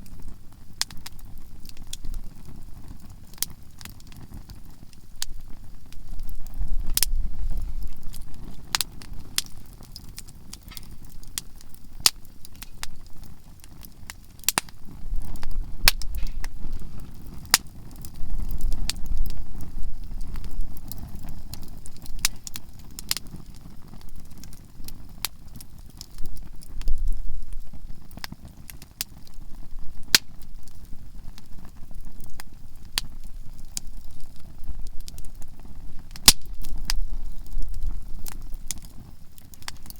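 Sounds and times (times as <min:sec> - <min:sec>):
campfire crackling and popping: 0:00.0 - 0:39.9
low rumble: 0:14.8 - 0:21.2.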